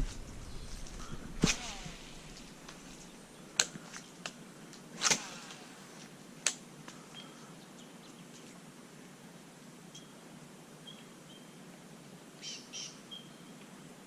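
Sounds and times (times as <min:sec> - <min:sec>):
brief swish: 0:01.4 - 0:02.6, 0:05.0 - 0:05.7
faint bird chirp: 0:07.0 - 0:08.4, 0:09.9 - 0:11.6, 0:12.4 - 0:13.7.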